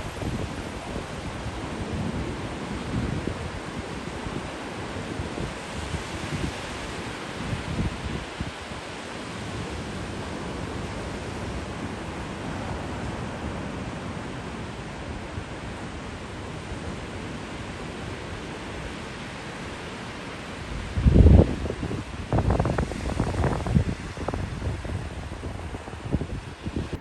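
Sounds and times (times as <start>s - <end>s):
wind buffeting microphone: 0.0s - 8.8s, 20.7s - 27.0s
ocean surf: 0.0s - 27.0s
wind: 0.0s - 27.0s.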